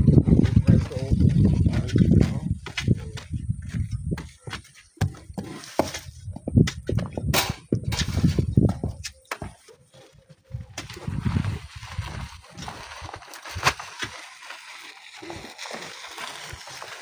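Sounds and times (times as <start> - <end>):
wind buffeting microphone: 0.0 - 4.4, 6.0 - 9.1, 10.5 - 13.0
sharp knocks and scrapes: 4.1 - 10.9.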